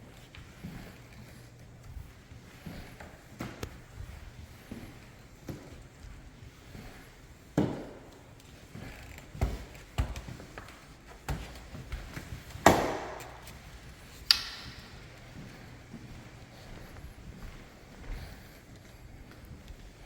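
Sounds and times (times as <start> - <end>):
knocks and thuds on hardwood floor: 11.2 - 13.2
sharp click: 14.2 - 14.9.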